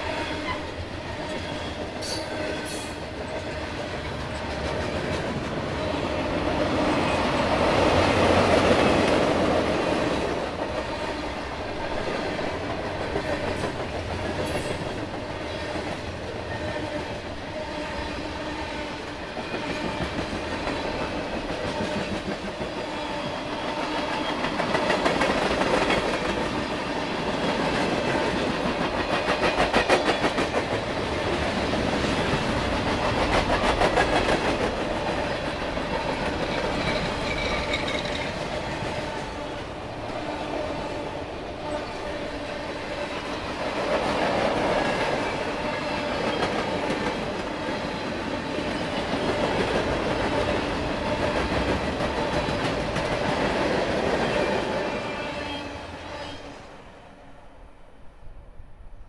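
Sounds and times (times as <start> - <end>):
freight train wheels rumbling: 0.0 - 56.7
wheels clickety-clack over joints: 23.9 - 26.6, 27.4 - 38.9.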